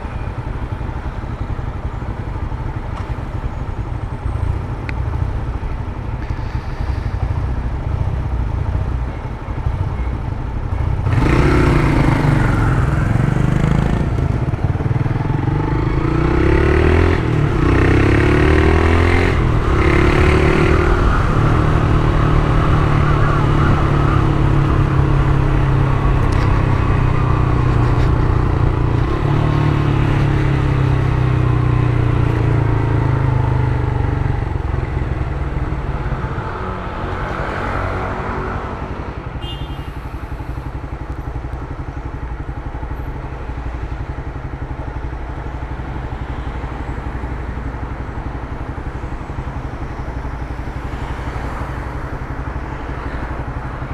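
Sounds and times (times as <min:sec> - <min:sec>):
motorcycle engine accelerating: 0:10.8 - 0:38.9.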